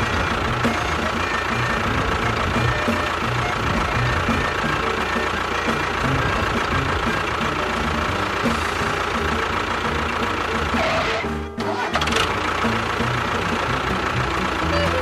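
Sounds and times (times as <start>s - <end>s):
motor chugging: 0.0s - 15.0s.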